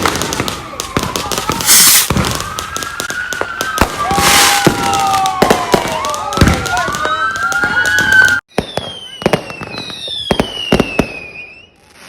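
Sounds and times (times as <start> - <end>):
fireworks bangs and crackles: 0.0 - 12.0
fireworks whistling: 0.0 - 12.0
loud hissing burst: 1.6 - 2.1.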